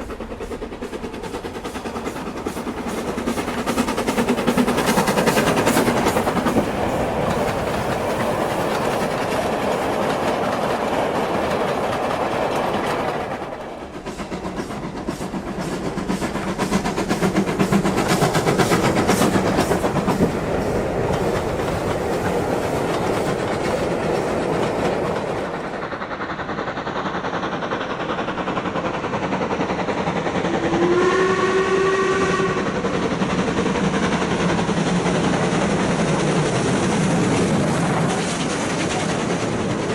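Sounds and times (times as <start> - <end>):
wheels clicking over rail joints: 0.0 - 26.4, 33.0 - 39.9
model train rolling rumble: 0.0 - 39.9
steam whistle: 30.4 - 32.9.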